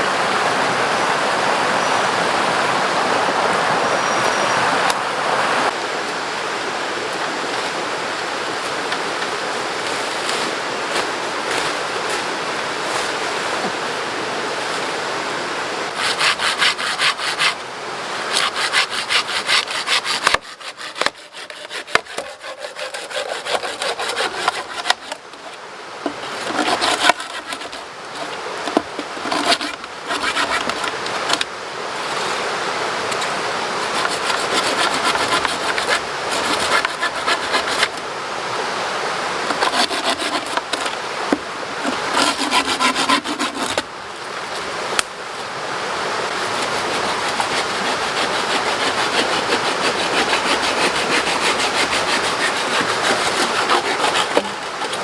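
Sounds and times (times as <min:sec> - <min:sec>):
river water rushing: 0:00.0 - 0:20.3, 0:21.7 - 0:55.0
hand saw cutting wood: 0:15.9 - 0:17.6, 0:18.2 - 0:31.5, 0:33.7 - 0:38.0, 0:39.4 - 0:43.9, 0:46.3 - 0:55.0.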